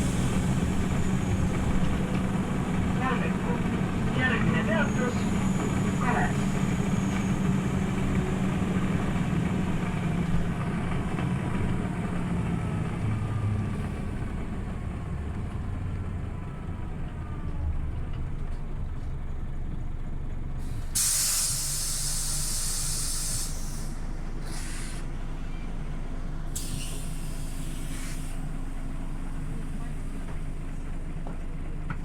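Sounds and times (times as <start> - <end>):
bus diesel engine running: 0.0 - 32.0
compressed air hiss: 21.0 - 25.1, 26.6 - 28.4.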